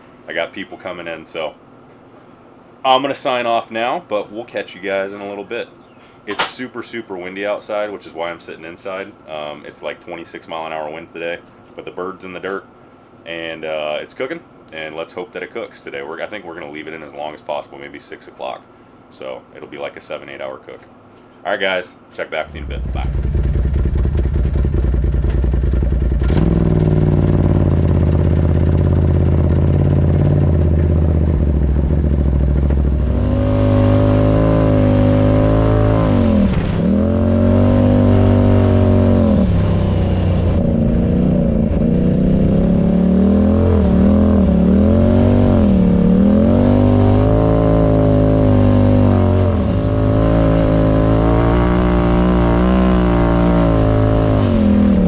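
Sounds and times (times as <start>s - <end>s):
off-road vehicle engine revving: 22.5s - 55.0s.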